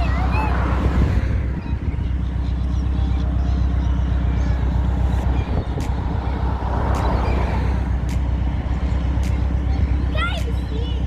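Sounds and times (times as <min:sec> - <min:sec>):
car engine droning inside cabin: 0:00.0 - 0:11.0.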